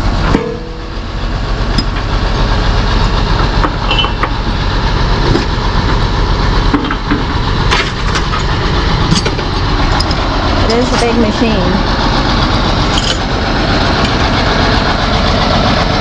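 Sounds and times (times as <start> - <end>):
machinery engine humming: 0.0 - 16.0
knocks and clanks: 0.2 - 0.9, 1.6 - 2.3, 2.9 - 4.6, 5.2 - 11.4.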